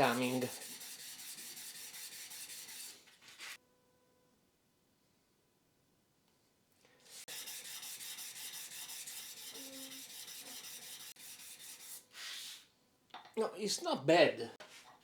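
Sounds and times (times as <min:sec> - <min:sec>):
metal sanding on abrasive paper: 0:00.0 - 0:03.6, 0:07.1 - 0:12.7.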